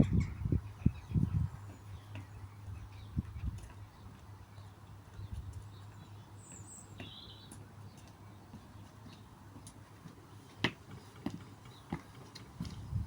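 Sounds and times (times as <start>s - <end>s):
bird chirp: 0.0s - 9.4s.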